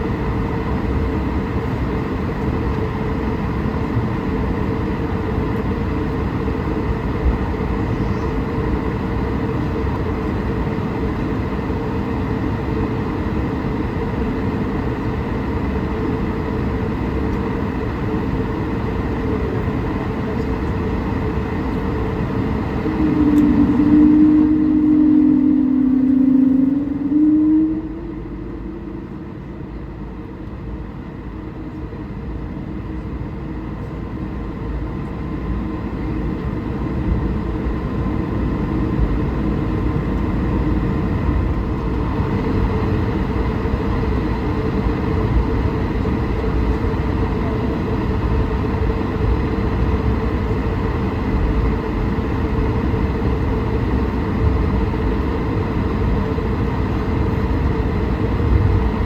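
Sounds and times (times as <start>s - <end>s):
jet engines humming: 0.0s - 59.0s
wheels rumbling: 20.4s - 31.1s
low held tone: 21.4s - 31.8s.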